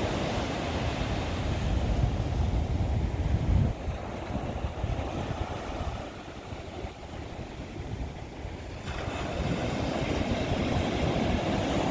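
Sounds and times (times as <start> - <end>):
seaside wind and water rumble: 0.0 - 11.9.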